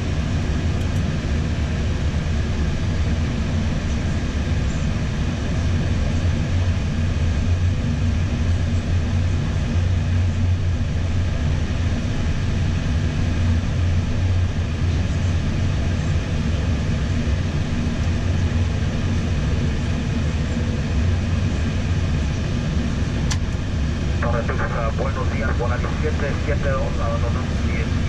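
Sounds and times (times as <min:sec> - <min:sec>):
cockpit ventilation whir: 0:00.0 - 0:28.0
jet engines idling: 0:00.0 - 0:28.0
strong low hum: 0:21.1 - 0:28.0.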